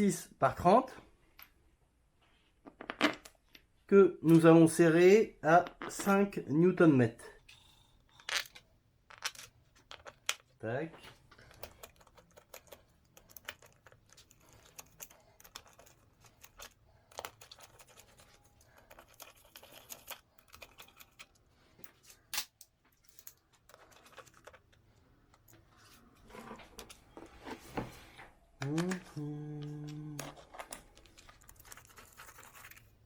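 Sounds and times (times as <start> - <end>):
small metal clicks and scrapes: 11.2 - 27.0.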